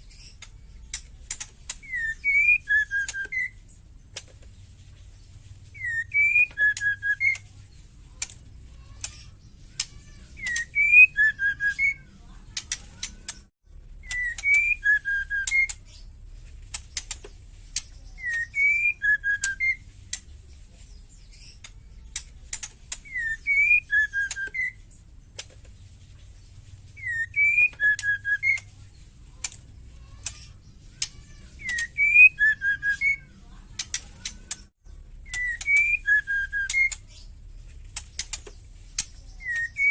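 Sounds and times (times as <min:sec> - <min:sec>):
bird whistled call: 0:01.8 - 0:03.7, 0:05.8 - 0:07.5, 0:10.4 - 0:12.1, 0:14.0 - 0:15.8, 0:18.1 - 0:19.8, 0:23.0 - 0:24.8, 0:27.0 - 0:28.7, 0:31.6 - 0:33.3, 0:35.2 - 0:37.1, 0:39.2 - 0:39.9
sharp rattling clicks: 0:37.7 - 0:39.7.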